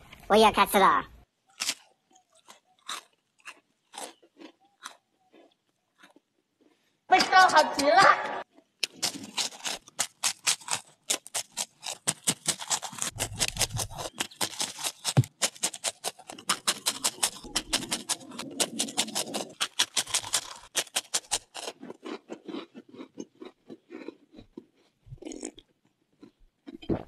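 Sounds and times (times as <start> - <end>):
crunching of biscuits being chewed: 1.3 - 7.1, 8.4 - 27.0.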